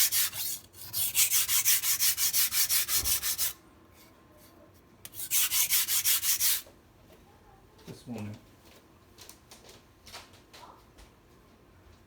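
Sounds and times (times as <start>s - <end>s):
knife scraping on sharpening stone: 0.0s - 3.6s, 5.1s - 6.6s.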